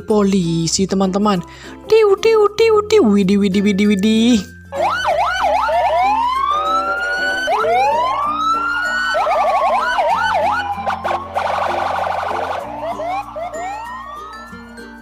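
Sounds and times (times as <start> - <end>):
toy police siren: 4.7 - 14.8.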